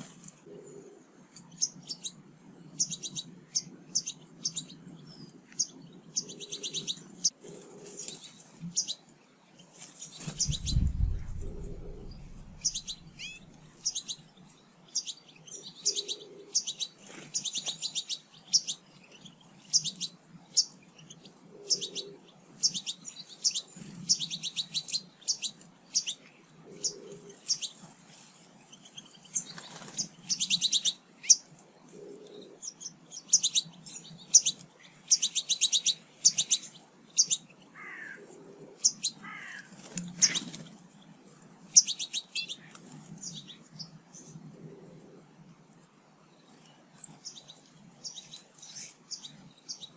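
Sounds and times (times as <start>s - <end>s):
small birds chirping: 0.0s - 49.9s
low rumble: 10.3s - 13.7s.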